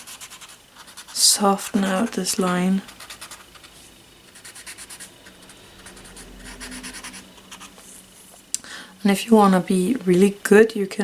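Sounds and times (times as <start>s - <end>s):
blending stump rubbing on paper: 0.0s - 8.0s.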